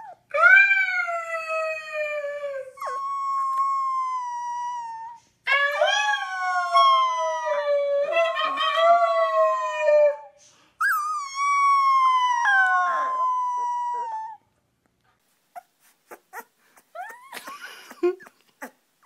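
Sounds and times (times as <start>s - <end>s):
puppy howling: 0.0s - 10.2s, 10.8s - 14.4s, 16.3s - 17.5s
puppy whimpering: 2.7s - 5.2s, 10.8s - 14.4s, 15.5s - 18.8s.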